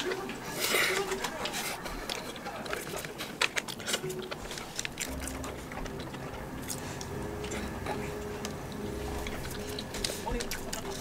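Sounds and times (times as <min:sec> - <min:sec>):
chewing soft bread: 0:00.0 - 0:11.0
soft background music: 0:00.0 - 0:11.0
sharp crinkles or clicks: 0:00.9 - 0:07.6.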